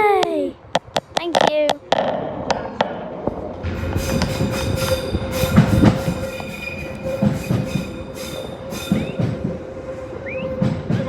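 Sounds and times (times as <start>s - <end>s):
train wheels knocking over rail joints: 0.8s - 9.6s
metallic wheel squeal: 3.8s - 9.4s.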